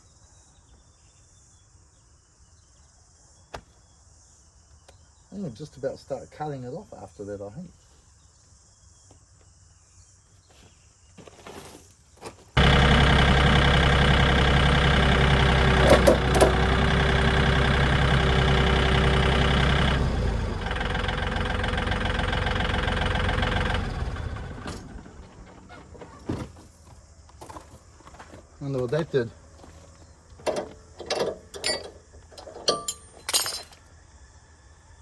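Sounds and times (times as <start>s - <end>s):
tractor engine running: 12.6s - 26.2s, 28.7s - 33.4s.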